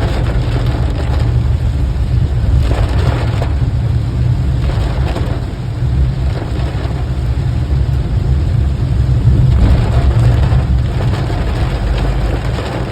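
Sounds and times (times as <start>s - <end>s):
car engine rumble: 0.0s - 12.9s
rain hissing: 0.0s - 12.9s.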